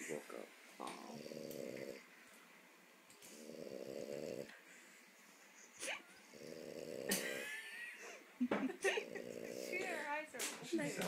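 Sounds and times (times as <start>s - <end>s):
dog snoring: 0.8s - 2.1s, 3.2s - 4.5s, 6.2s - 7.4s, 8.9s - 10.0s.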